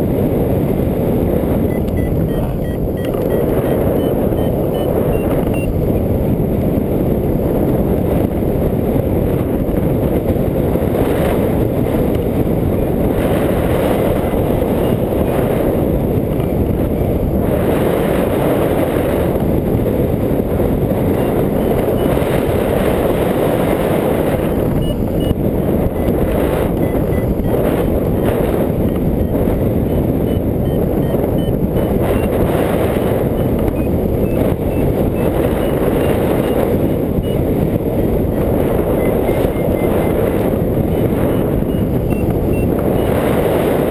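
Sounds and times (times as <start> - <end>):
wind roaring over microphone: 0.0 - 43.9
faint high beeps: 1.6 - 5.8, 21.2 - 22.3, 24.3 - 43.2.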